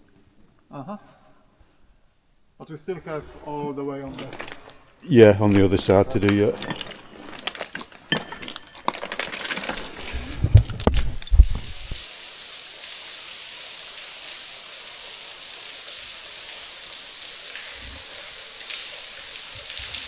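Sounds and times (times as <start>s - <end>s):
loose slate clinking: 4.2s - 12.0s
hiss of falling water: 11.6s - 20.0s.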